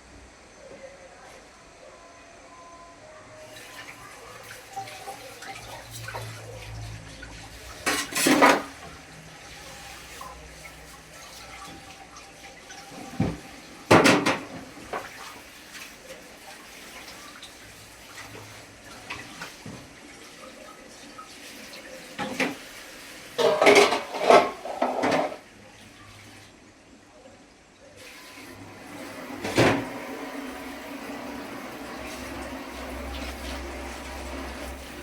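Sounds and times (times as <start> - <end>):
water running from a tap: 3.5 - 26.6, 28.0 - 35.0
dishes and utensils clattering: 7.7 - 9.0, 12.6 - 15.2, 23.4 - 25.4.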